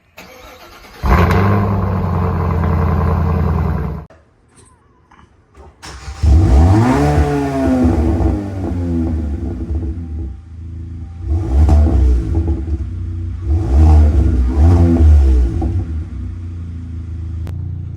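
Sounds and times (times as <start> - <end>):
car engine revving: 0.2 - 4.1, 5.8 - 17.8.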